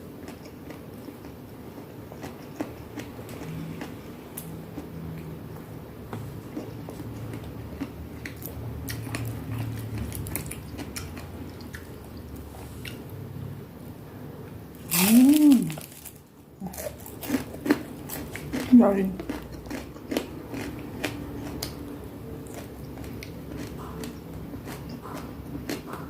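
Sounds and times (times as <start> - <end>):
person chewing and crunching food: 0.0 - 13.1, 14.8 - 26.0
person humming mmm: 14.9 - 15.9.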